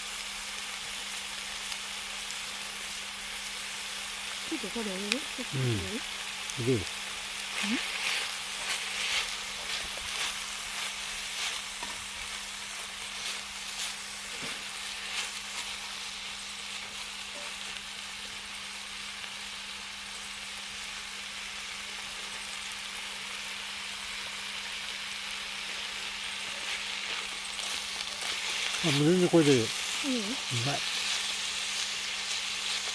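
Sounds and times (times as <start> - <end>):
food sizzling over campfire: 0.0 - 32.9
pops and crackles: 7.4 - 14.6.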